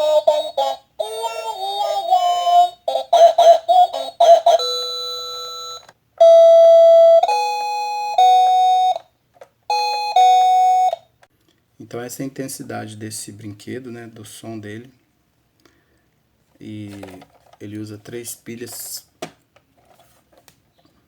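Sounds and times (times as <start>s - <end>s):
toy playing electronic tune: 0.0s - 9.0s, 9.7s - 11.1s.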